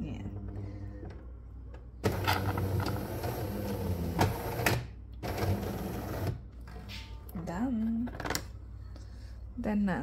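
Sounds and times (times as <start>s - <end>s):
coffee machine humming: 0.4s - 6.6s.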